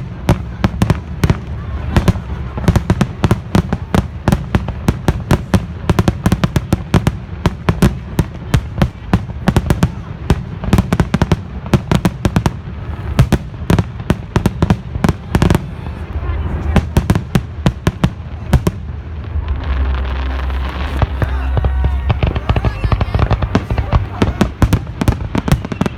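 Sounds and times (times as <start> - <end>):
fireworks cracking and popping: 0.0 - 25.9
low rumble: 14.8 - 25.4.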